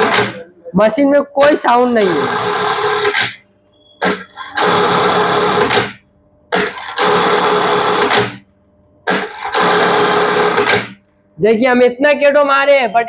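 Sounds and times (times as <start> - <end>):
sewing machine stitching: 0.0 - 0.4, 2.0 - 3.4, 4.0 - 8.4, 9.1 - 11.0.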